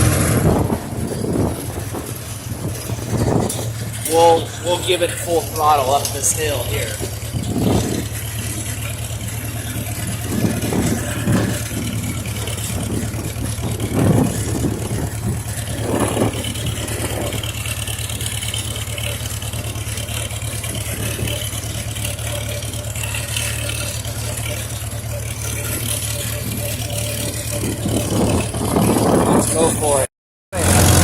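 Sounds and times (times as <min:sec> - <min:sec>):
engine puffs: 0:00.0 - 0:31.0
tractor engine at full throttle: 0:00.0 - 0:31.0.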